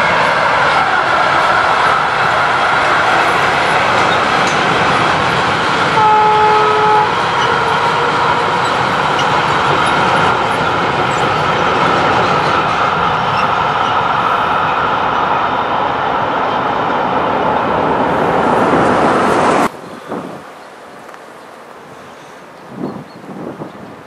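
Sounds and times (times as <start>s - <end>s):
freight train wheels on rail: 0.0s - 24.0s
train horn: 5.9s - 8.5s.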